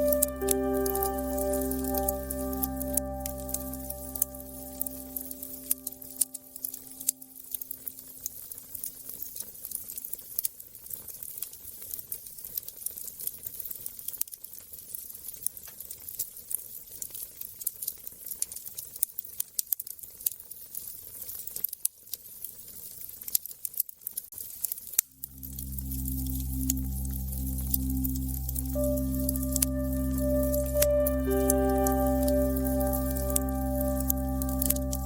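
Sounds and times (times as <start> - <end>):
held low musical tone: 0.0 - 8.1, 25.2 - 35.0.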